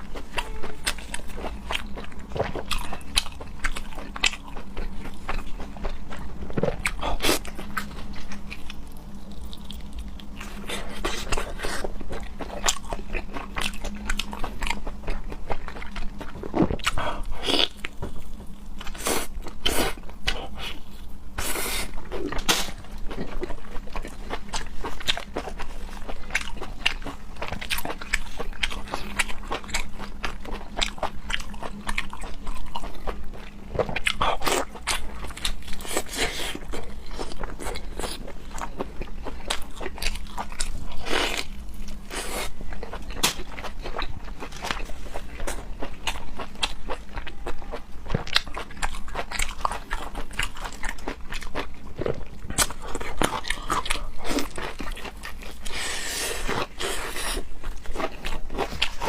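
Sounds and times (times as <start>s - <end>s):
person chewing crunchy food: 0.0s - 59.0s.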